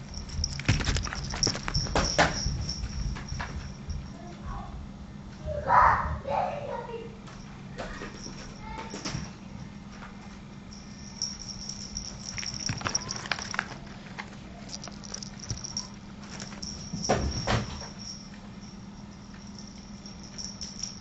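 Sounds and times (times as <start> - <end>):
steady low hum: 0.0 - 21.0
paws and toy tapping on floor: 0.2 - 3.8, 11.6 - 13.8, 14.7 - 18.0.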